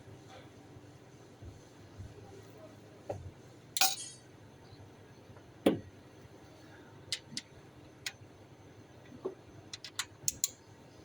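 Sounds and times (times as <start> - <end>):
metal tools clinking on engine parts: 3.8 - 4.2.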